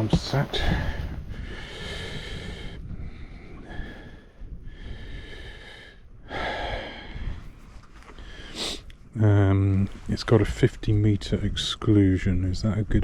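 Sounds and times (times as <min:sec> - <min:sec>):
wind rumble on microphone: 0:00.0 - 0:13.0
person breathing: 0:00.6 - 0:07.5, 0:08.2 - 0:08.9.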